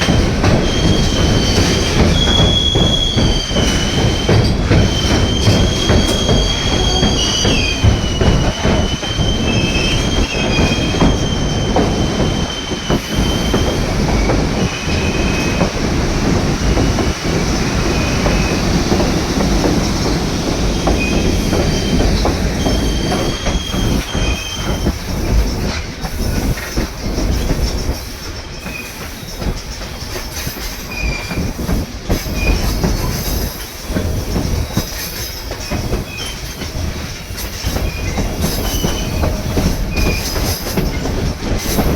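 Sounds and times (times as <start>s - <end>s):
train wheels rumbling on rails: 0.0s - 41.9s
high-pitched wheel squeal: 0.6s - 15.6s.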